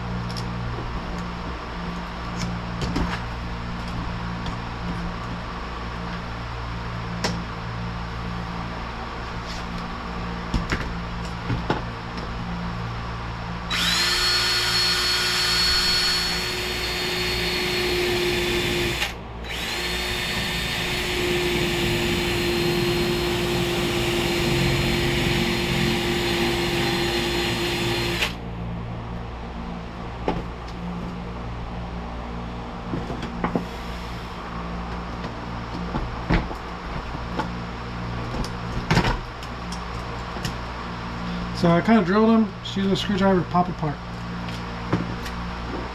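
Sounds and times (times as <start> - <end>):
electric drill whining: 13.7 - 28.4, 33.6 - 34.4.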